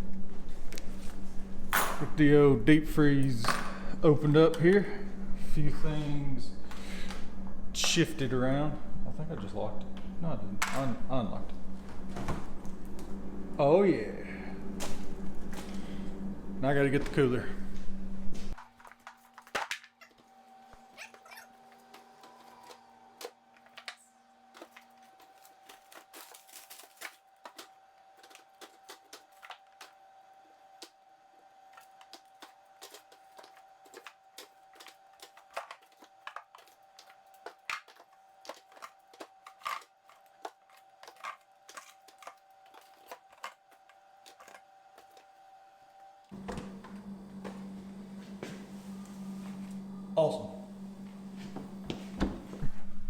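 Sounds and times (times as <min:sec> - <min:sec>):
freezer hum: 0:00.0 - 0:53.0
frozen packages knocking and clicking: 0:21.1 - 0:30.1, 0:31.6 - 0:45.3.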